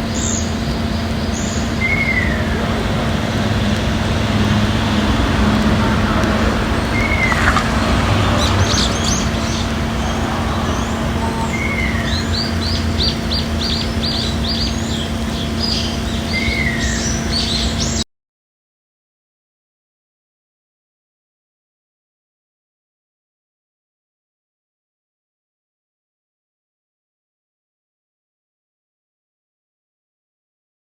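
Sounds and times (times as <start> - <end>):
small birds chirping: 0.0 - 18.0
steady low hum: 0.0 - 18.0.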